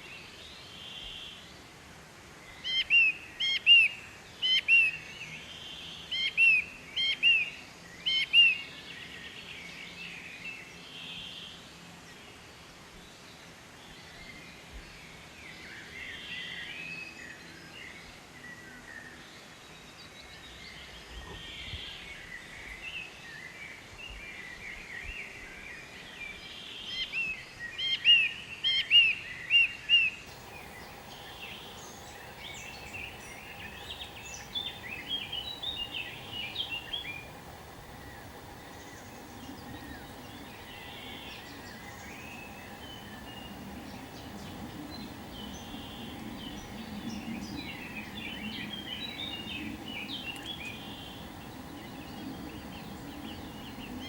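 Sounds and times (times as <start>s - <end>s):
outdoor background noise: 0.0s - 54.0s
songbirds chirping and singing: 25.7s - 54.0s
faint steady hum: 30.2s - 54.0s.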